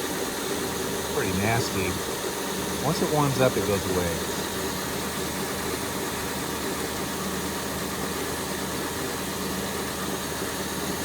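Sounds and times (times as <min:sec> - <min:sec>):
car engine idling: 0:01.0 - 0:05.2.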